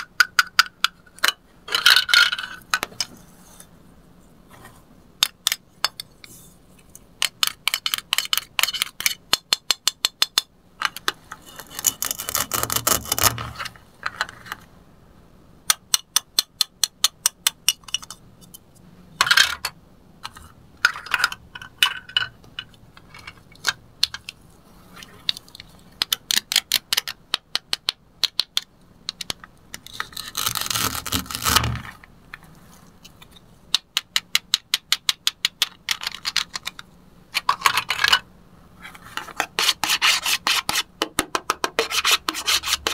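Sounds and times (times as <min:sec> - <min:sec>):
velcro ripping apart: 0:30.2 - 0:31.6.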